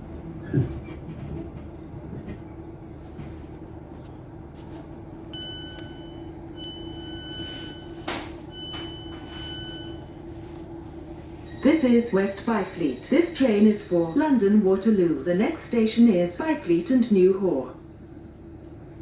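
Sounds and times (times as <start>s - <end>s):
electrical hum: 2.6s - 19.0s
door alarm beeping: 5.4s - 10.5s, 11.4s - 14.7s
train doors hiss or clunk: 7.8s - 9.4s.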